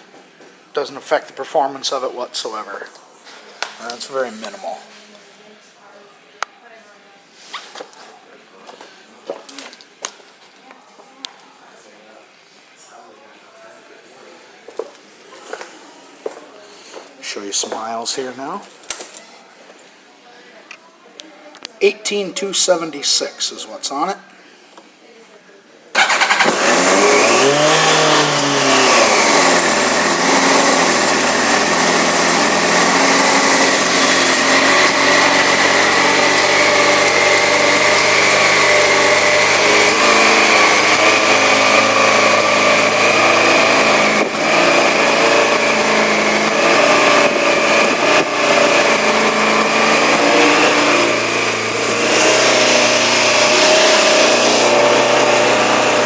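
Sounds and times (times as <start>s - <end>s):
motorcycle engine revving and idling: 26.0s - 56.0s.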